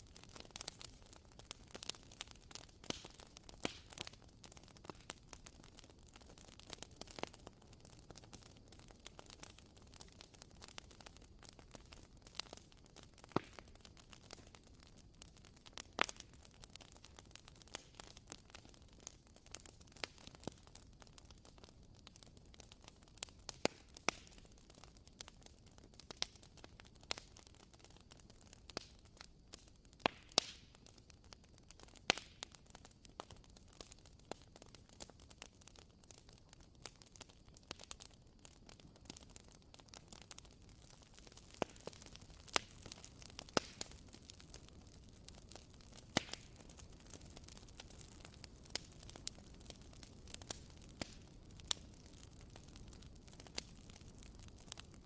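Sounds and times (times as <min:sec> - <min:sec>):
candle crackling: 0:22.8 - 0:55.0.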